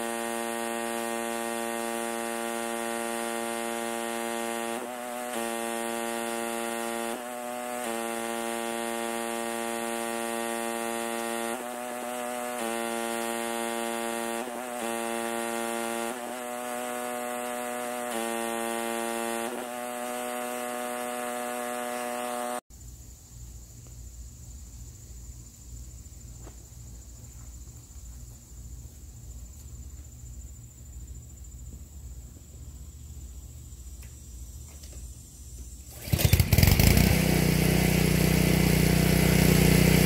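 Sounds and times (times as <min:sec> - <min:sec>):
pressure washer humming: 0:00.0 - 0:22.6, 0:35.9 - 0:40.0.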